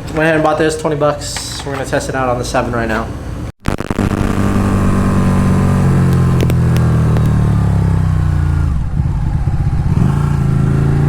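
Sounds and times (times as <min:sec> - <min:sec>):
motorcycle engine running: 0:03.7 - 0:11.0.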